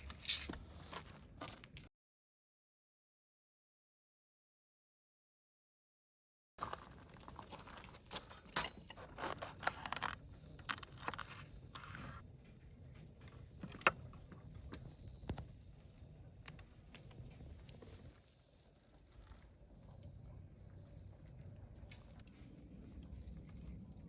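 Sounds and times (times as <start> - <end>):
rustling and crinkling: 0.0 - 1.9, 6.6 - 15.4.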